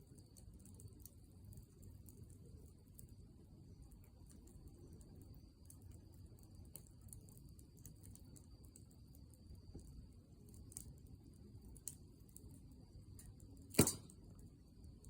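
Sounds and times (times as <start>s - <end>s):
wood fire crackling: 0.0s - 15.0s
loud sharp pop: 13.7s - 14.1s.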